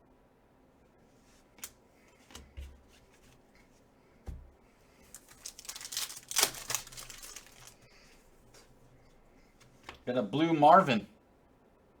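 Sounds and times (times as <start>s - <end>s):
foil wrapper tearing and crinkling: 5.1s - 7.8s.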